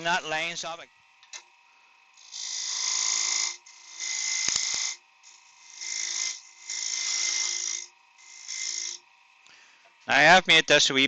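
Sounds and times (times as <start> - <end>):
lathe humming: 0.0 - 10.4
tool scraping wood on lathe: 2.2 - 9.4.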